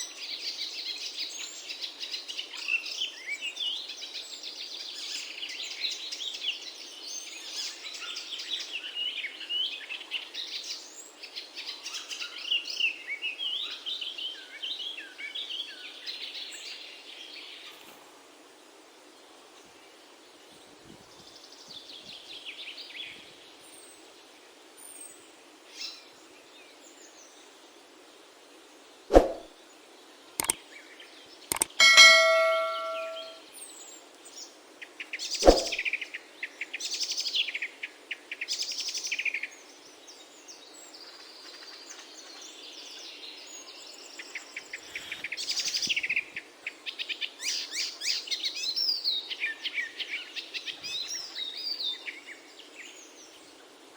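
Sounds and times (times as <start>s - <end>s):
metallic ringing clang: 31.5s - 33.4s
sharp knocks: 31.5s - 33.4s.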